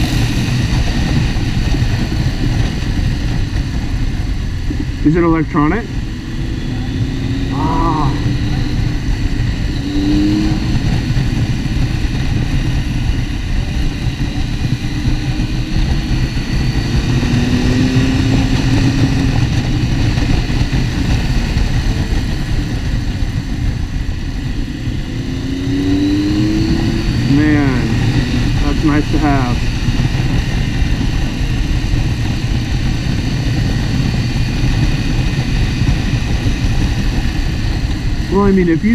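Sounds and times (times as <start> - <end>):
motorcycle engine: 0.0 - 38.9
wind and road noise: 0.0 - 38.9.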